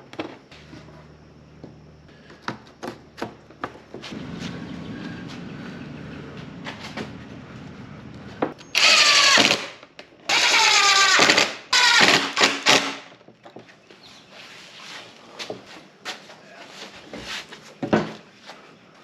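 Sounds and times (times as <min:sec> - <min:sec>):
power drill running: 0:08.8 - 0:13.0.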